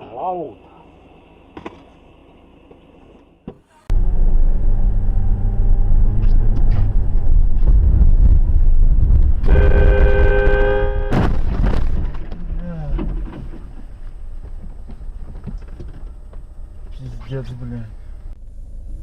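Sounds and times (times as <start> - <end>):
vehicle road rumble: 0.6 - 19.0
horn blast: 9.4 - 11.3.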